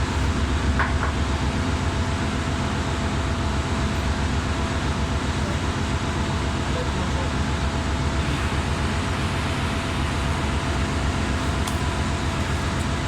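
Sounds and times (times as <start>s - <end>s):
engine room machinery hum: 0.0s - 13.0s.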